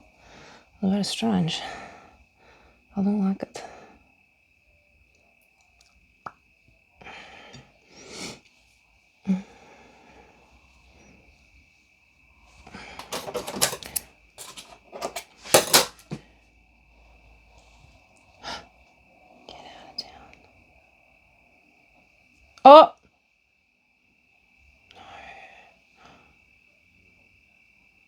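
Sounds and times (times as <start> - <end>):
objects clattering: 12.9 - 16.2
small objects clicking and tapping: 13.0 - 16.2.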